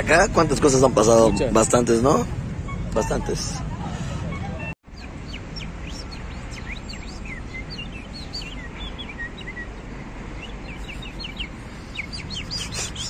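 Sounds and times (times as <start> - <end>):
small birds chirping: 4.6 - 13.0.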